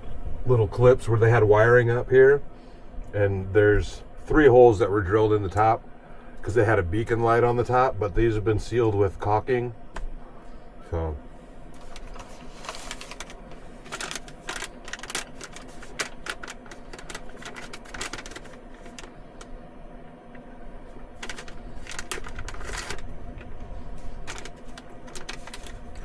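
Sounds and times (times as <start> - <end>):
steady low hum: 0.0 - 26.0
plastic food packaging crinkling: 11.7 - 19.6, 21.1 - 26.0.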